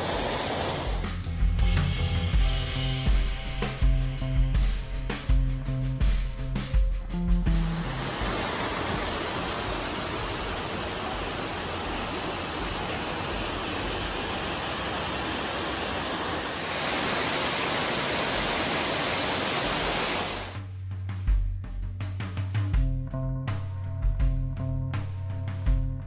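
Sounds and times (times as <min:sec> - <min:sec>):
waterfall rushing: 0:00.0 - 0:01.0, 0:07.6 - 0:20.6.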